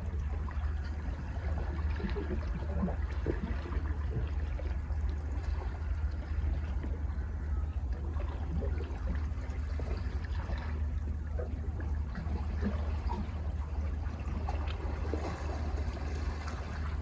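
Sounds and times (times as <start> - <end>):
water trickling and gurgling: 0.0 - 17.0
sea waves washing in: 12.1 - 17.0.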